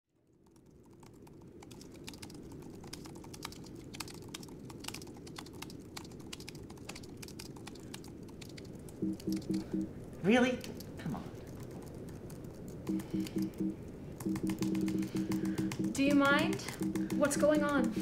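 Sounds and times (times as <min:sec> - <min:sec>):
low room hum: 0:00.1 - 0:18.0
keyboard key clicks: 0:11.6 - 0:18.0.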